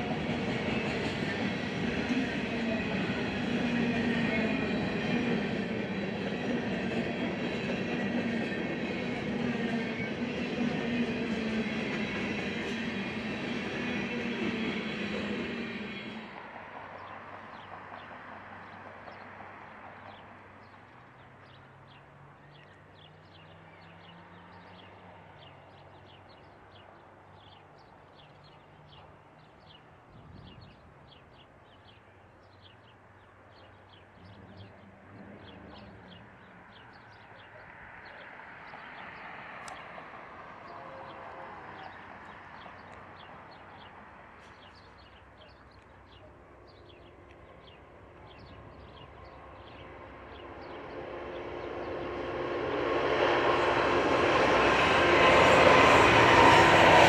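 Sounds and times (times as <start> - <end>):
diesel freight train rumbling: 0.0 - 22.3, 33.7 - 57.0.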